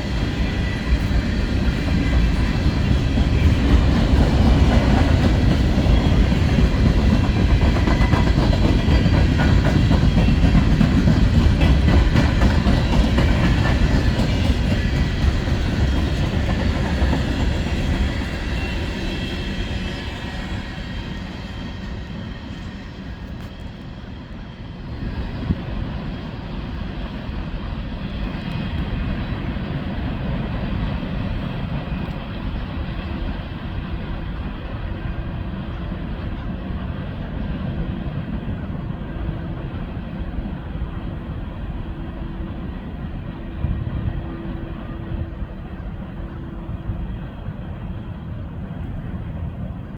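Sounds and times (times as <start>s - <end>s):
train wheels clattering over rail joints: 0.0s - 19.0s
low train rumble: 0.0s - 49.9s.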